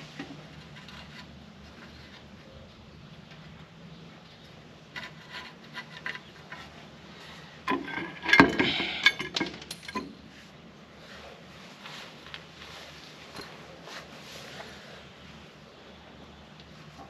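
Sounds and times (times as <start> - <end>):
metal tools clinking on steel: 7.7 - 10.2.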